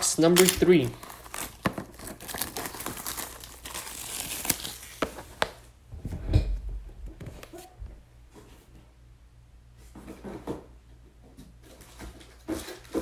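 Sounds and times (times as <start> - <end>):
plastic shrink wrap crinkling and tearing: 0.0 - 5.6.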